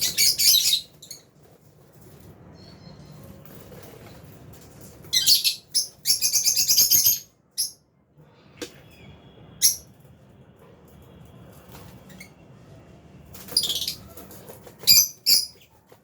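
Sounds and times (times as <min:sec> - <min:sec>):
lovebirds chirping: 0:00.0 - 0:01.3.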